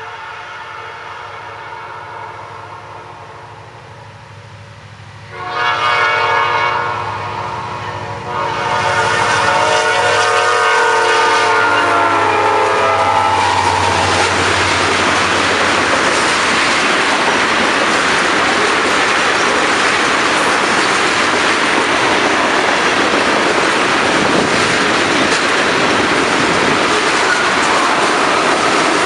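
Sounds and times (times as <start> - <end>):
locomotive air horn: 0.0 - 3.2, 5.3 - 15.0
train wheels clattering on rails: 8.8 - 29.0.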